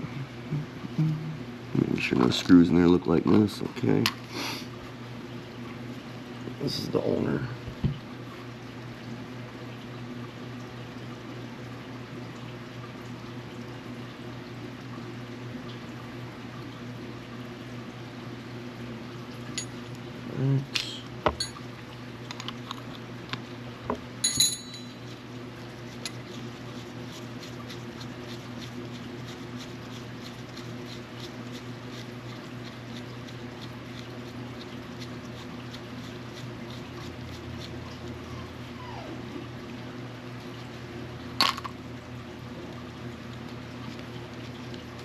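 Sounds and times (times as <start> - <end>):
steady low hum: 0.0 - 45.0
metal clicks and clinks: 24.2 - 24.9.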